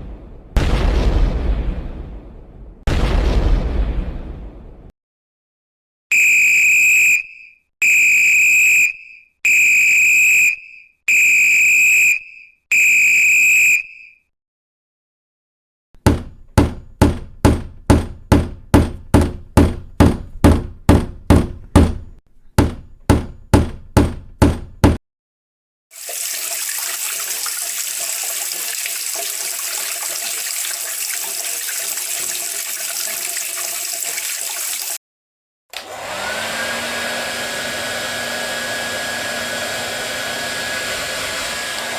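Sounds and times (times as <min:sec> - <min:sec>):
whistle blasts: 0:06.1 - 0:14.2
hammer striking: 0:16.0 - 0:25.0
water tap running: 0:16.0 - 0:25.0, 0:26.0 - 0:35.0.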